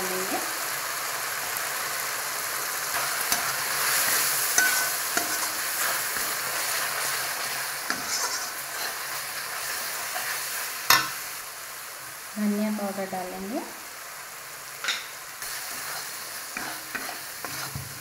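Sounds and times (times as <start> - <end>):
paste sizzling in hot oil: 0.0 - 18.0
fork scraping a pan: 3.0 - 6.8, 7.4 - 9.2, 14.8 - 18.0
utensil clinking on pan: 4.6 - 5.6.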